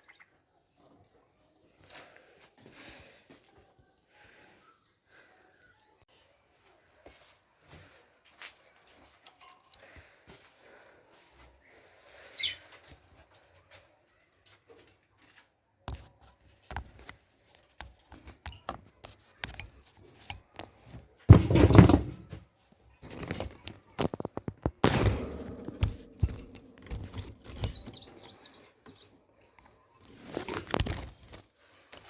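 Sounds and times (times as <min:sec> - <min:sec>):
knocks and clicks of cleaning: 0:24.4 - 0:28.0.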